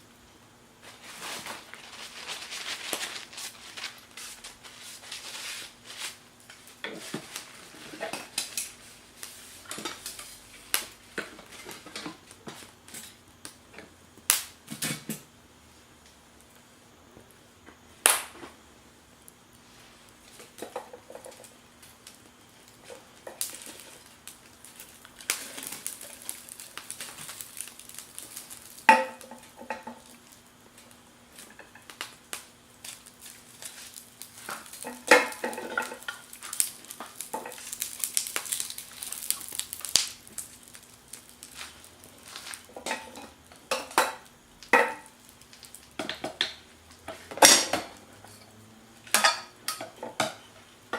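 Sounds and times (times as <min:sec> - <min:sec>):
faint steady hum: 0:00.0 - 0:50.9
utensils scraping and stirring: 0:22.8 - 0:30.1, 0:32.8 - 0:39.6, 0:40.7 - 0:44.2.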